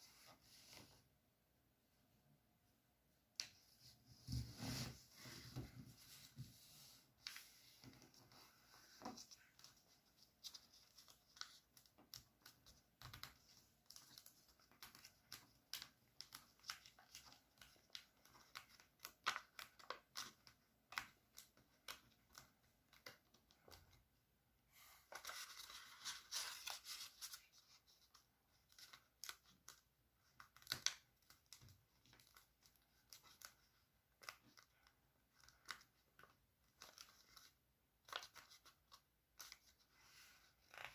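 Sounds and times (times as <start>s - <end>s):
paper crinkling and clicking: 9.0s - 23.8s.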